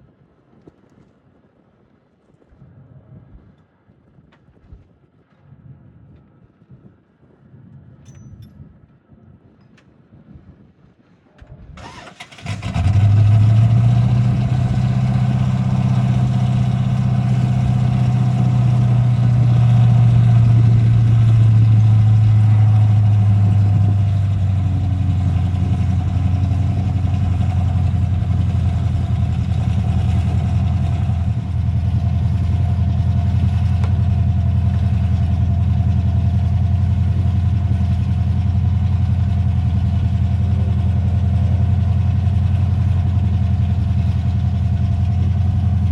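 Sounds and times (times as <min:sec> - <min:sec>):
vehicle engine running: 0:11.8 - 0:45.9.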